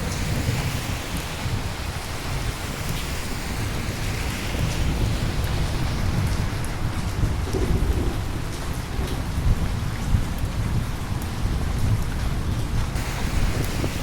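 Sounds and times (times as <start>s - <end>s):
heavy rain: 0.0s - 14.0s
low rumble of thunder: 4.8s - 14.0s.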